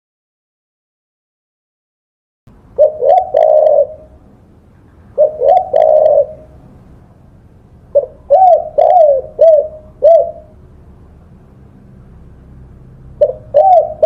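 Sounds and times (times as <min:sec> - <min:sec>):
dove cooing: 0:02.7 - 0:07.0, 0:07.9 - 0:10.6, 0:13.1 - 0:14.0.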